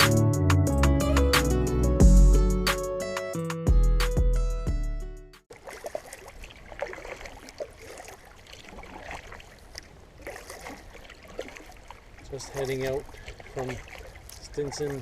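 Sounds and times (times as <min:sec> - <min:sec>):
paddle splashing in water: 0:05.5 - 0:15.0
water trickling and dripping: 0:05.5 - 0:15.0.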